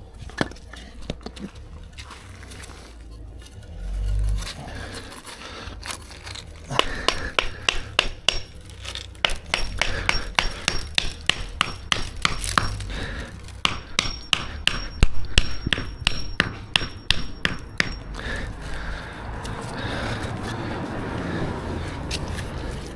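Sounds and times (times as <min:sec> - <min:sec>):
hammer striking timber: 0:06.7 - 0:18.9.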